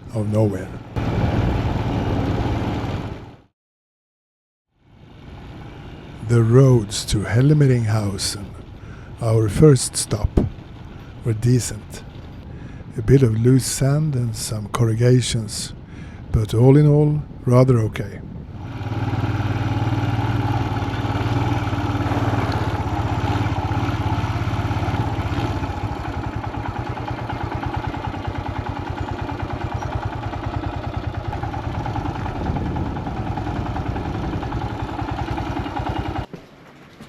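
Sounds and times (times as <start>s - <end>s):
motorcycle engine running: 0.9s - 3.4s, 10.2s - 11.2s, 18.5s - 36.4s.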